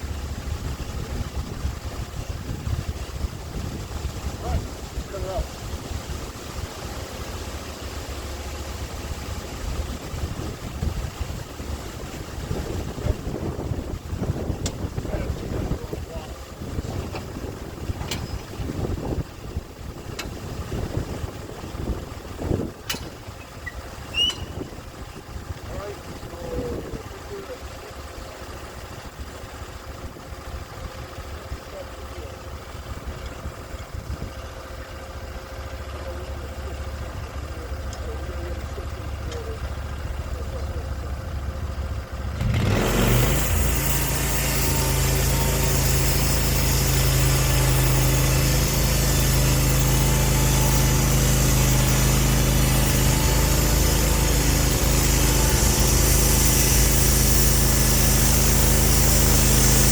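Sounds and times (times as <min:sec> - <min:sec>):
wind rumble on microphone: 0:00.0 - 0:06.8, 0:09.3 - 0:27.2, 0:32.8 - 0:34.5
sawmill engine drone: 0:00.0 - 0:59.9.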